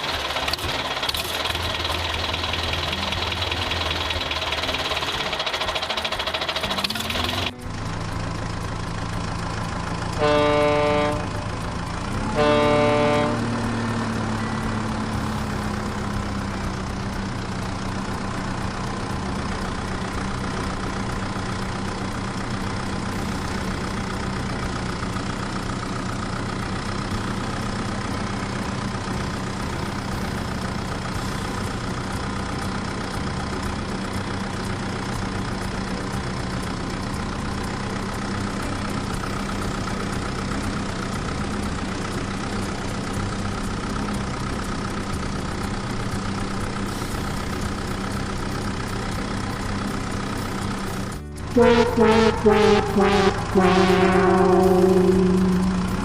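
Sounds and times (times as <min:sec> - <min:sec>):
truck engine idling: 0:00.0 - 0:56.0
truck horn honking: 0:10.1 - 0:11.6, 0:12.2 - 0:14.6, 0:51.5 - 0:56.0.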